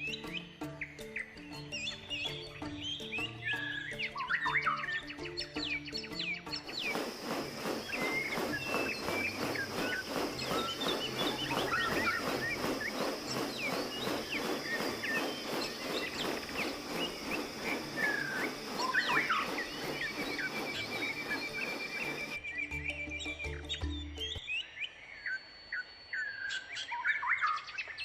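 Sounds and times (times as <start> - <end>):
birds chirping: 6.6 - 22.8
steady high hum: 6.7 - 22.4.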